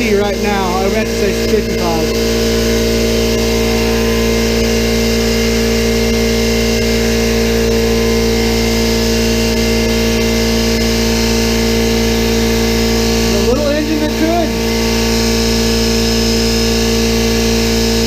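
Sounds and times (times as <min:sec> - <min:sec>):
air compressor motor hum: 0:00.0 - 0:18.0
compressor pump clatter: 0:00.0 - 0:18.0.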